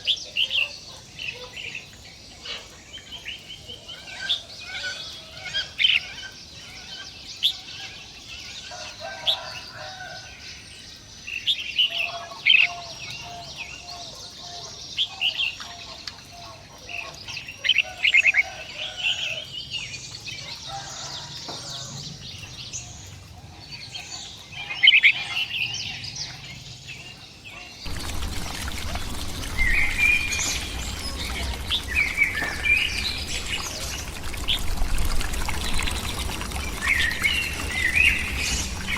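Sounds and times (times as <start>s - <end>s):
birds chirping and calling: 21.5s - 38.9s
steady rushing noise: 27.9s - 38.9s.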